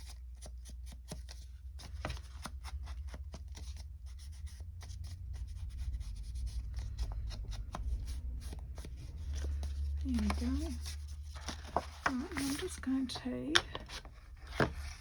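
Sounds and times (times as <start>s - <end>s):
paper scratching and rustling: 0.0s - 15.0s
steady low hum: 3.9s - 15.0s.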